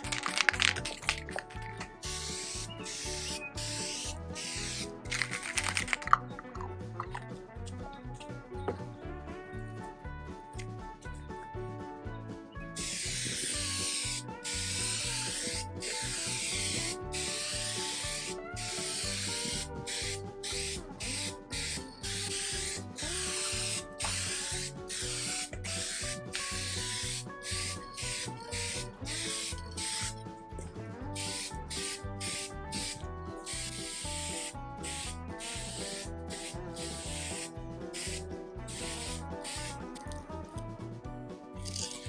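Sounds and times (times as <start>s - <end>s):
aerosol spray can hissing: 0.0s - 6.1s, 12.8s - 30.2s, 31.2s - 40.1s
background music with bass beat: 0.0s - 42.0s.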